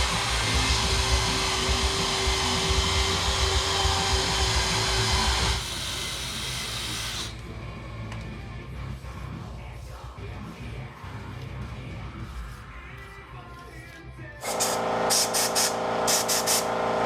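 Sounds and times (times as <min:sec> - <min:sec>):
small motor whirring: 0:00.0 - 0:07.4.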